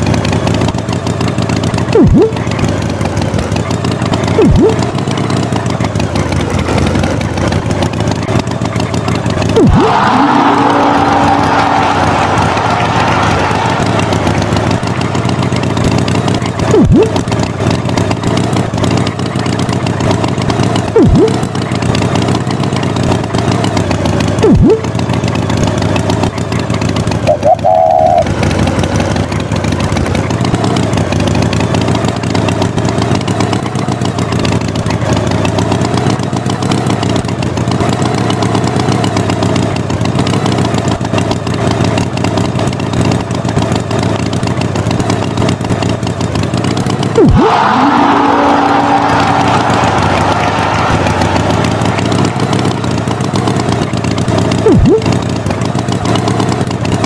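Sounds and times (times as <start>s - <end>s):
vehicle engine running: 0.0s - 57.0s
falling-pitch cartoon sounds: 1.9s - 2.4s, 4.4s - 4.9s, 9.6s - 14.8s, 16.6s - 17.2s, 21.0s - 21.4s, 24.4s - 24.9s, 27.3s - 28.3s, 47.2s - 52.4s, 54.6s - 55.2s
brief warbling tone: 1.9s - 2.6s, 4.3s - 5.0s, 16.6s - 17.2s, 21.0s - 21.5s, 24.4s - 24.9s, 27.2s - 28.3s, 54.6s - 55.2s.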